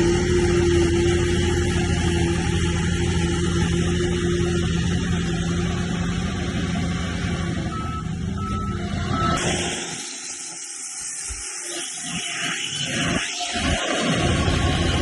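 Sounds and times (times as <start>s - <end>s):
heavy diesel engine running: 0.0s - 10.0s, 13.6s - 15.0s
short high beeps: 7.7s - 9.4s.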